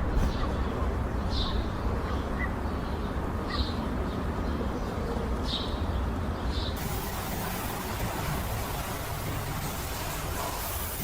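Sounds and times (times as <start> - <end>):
steady hiss: 6.8 - 11.0.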